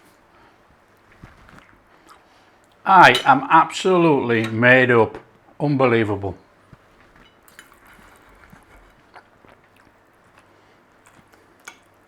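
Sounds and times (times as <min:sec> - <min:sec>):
person chewing food: 0:00.4 - 0:02.8, 0:06.8 - 0:12.0.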